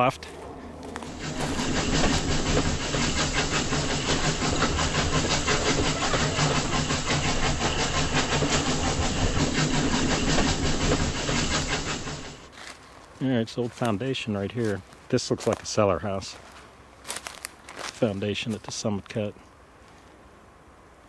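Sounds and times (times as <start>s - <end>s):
small engine running: 0.2s - 12.5s
fast regular ticking: 1.0s - 12.5s.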